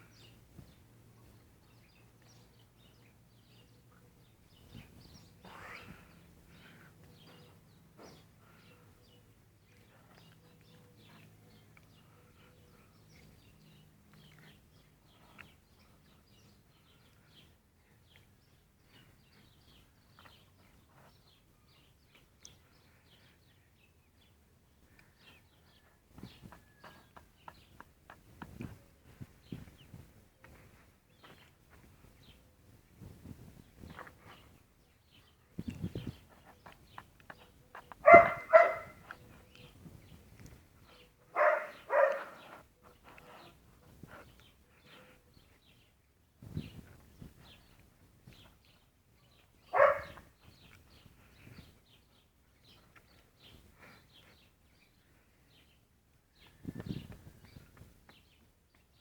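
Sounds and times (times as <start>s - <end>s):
dog barking: 38.0s - 39.0s, 41.3s - 42.4s, 49.7s - 50.2s.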